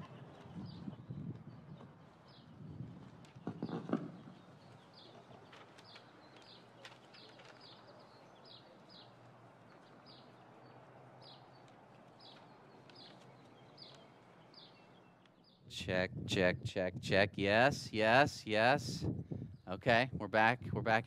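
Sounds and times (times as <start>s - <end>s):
outdoor background noise: 0.0s - 21.0s
bird chirping: 3.4s - 15.7s.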